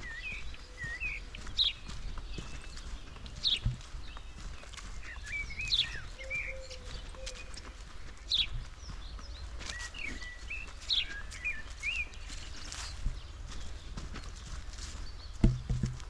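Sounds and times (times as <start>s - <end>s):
wind rumble on microphone: 0.0s - 10.2s, 11.6s - 16.0s
twittering bird chirps: 0.0s - 15.6s
small birds calling: 0.0s - 16.0s
footfalls on forest floor: 8.6s - 16.0s.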